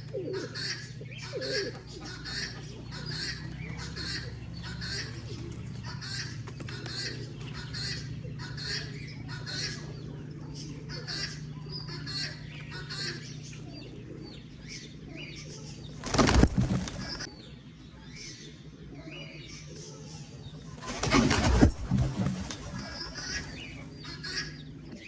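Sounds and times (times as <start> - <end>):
steady low hum: 0.0 - 17.3, 20.6 - 24.2
birds chirping: 0.0 - 25.0
wings flapping: 1.6 - 8.8, 16.0 - 17.3, 20.6 - 24.0.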